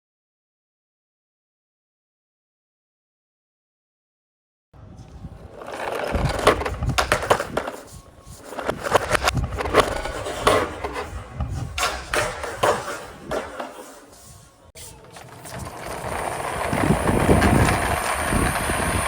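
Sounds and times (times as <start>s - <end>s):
toy wheels rolling on ramp: 5.3s - 19.0s.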